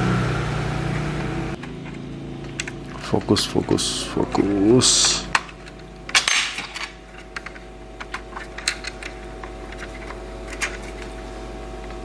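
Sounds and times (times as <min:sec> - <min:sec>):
steady electrical hum: 0:00.0 - 0:12.0
laptop parts clicking and tapping: 0:05.3 - 0:11.2.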